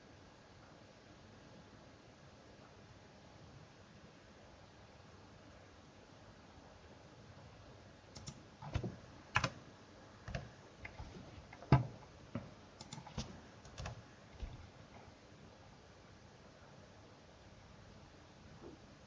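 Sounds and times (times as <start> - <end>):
keyboard key clicks: 8.2 - 9.6, 10.3 - 14.7.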